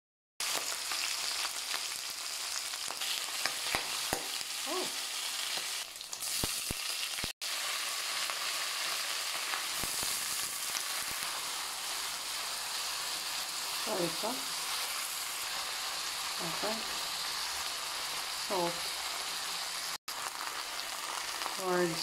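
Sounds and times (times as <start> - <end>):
food sizzling in a wok: 0.4 - 22.0.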